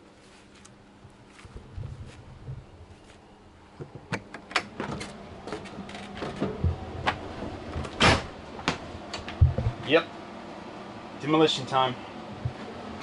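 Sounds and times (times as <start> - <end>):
wood and metal knocks and clatter: 3.8 - 9.8.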